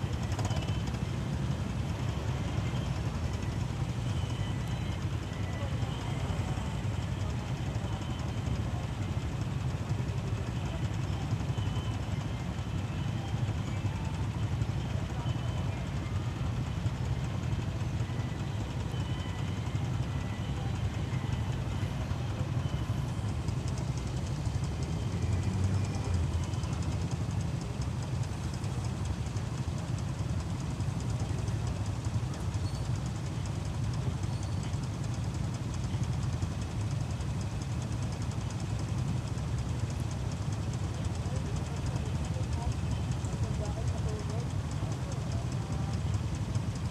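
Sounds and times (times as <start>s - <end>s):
motorcycle engine and road noise: 0.0s - 46.9s.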